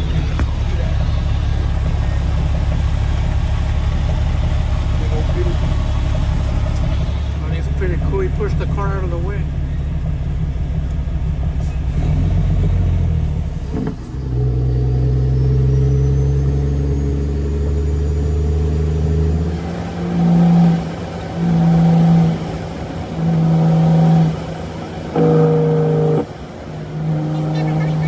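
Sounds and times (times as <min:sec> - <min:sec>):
loud steady-pitch pulses: 0:00.0 - 0:11.3, 0:19.4 - 0:28.0
truck diesel engine drone: 0:00.0 - 0:28.0.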